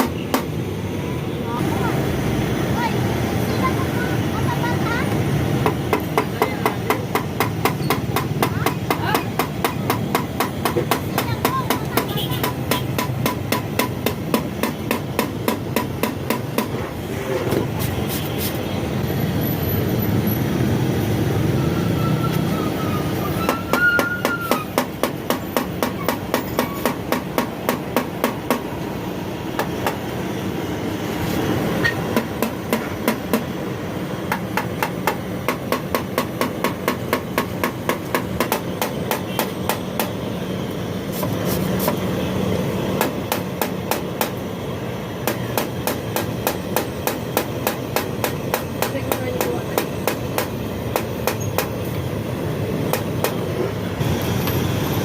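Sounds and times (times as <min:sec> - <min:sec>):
hammer tapping on sheet metal: 0:00.0 - 0:00.6, 0:05.6 - 0:16.8, 0:23.4 - 0:28.8, 0:29.6 - 0:30.0, 0:31.9 - 0:33.6, 0:34.3 - 0:40.3, 0:42.9 - 0:44.5, 0:45.2 - 0:51.9, 0:52.8 - 0:53.7.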